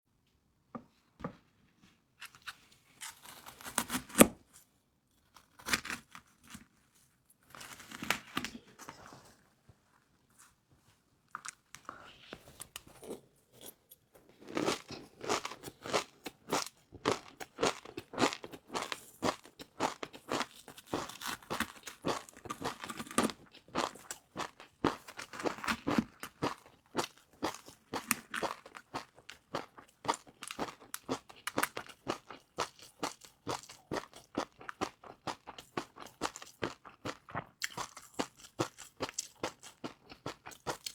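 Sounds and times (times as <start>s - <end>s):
crunching crispy noodles: 14.5s - 40.9s.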